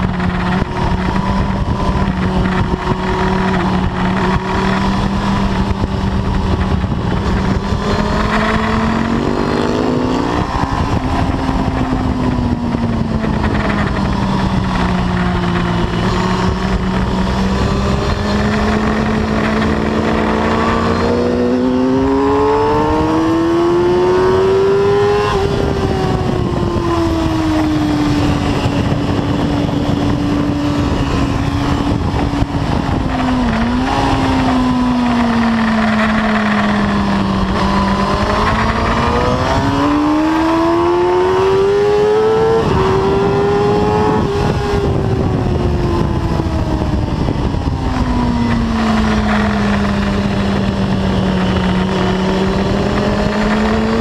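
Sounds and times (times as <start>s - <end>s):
motorcycle engine revving: 0.0s - 54.0s
wind rushing: 0.0s - 54.0s.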